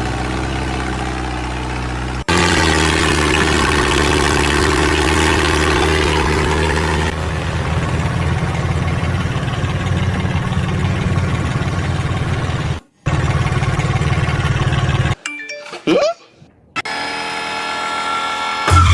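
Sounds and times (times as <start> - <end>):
tractor engine drone: 0.0 - 15.3, 16.8 - 18.9.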